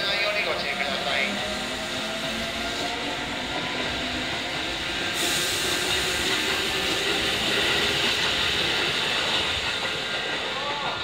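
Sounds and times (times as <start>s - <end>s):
train running noise: 0.0s - 11.0s
hiss: 4.6s - 10.9s.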